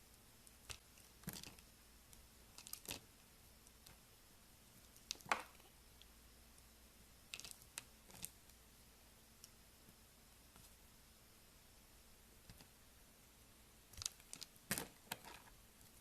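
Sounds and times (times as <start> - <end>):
knife cutting soap: 0.5 - 1.6.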